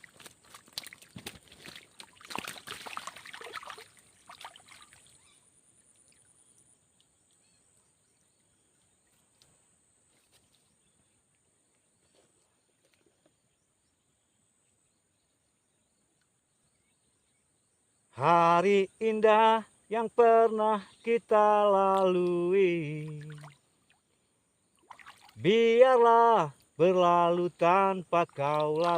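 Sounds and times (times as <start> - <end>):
crackling sloshing handling noises: 0.0 - 5.2.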